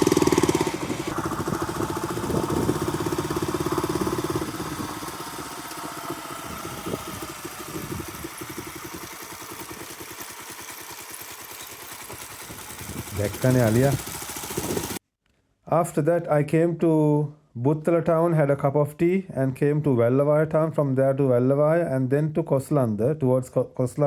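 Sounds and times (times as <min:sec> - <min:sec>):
dirt bike engine idling: 0:00.0 - 0:15.0.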